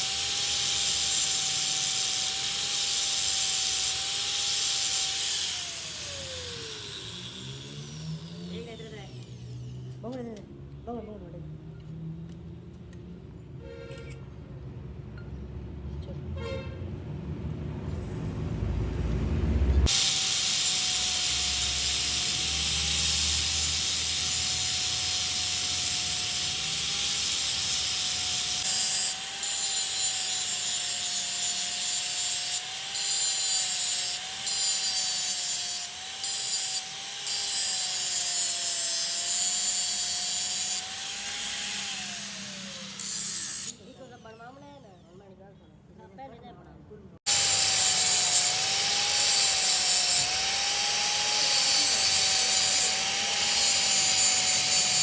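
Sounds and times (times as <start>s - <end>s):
power tool humming: 0.0s - 10.2s, 19.8s - 45.0s, 47.3s - 55.0s
power tool cutting iron: 0.0s - 10.3s, 19.8s - 45.0s, 47.3s - 55.0s.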